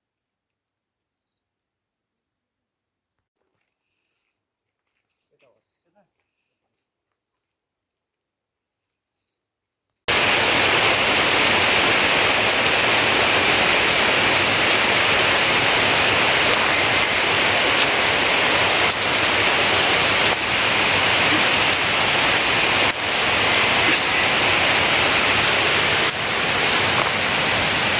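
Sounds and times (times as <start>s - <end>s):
heavy rain: 10.1s - 27.9s
raindrops ticking: 10.1s - 27.9s.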